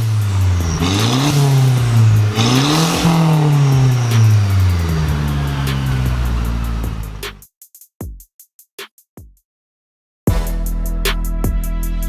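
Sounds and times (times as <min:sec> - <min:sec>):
car engine revving: 0:00.0 - 0:07.4.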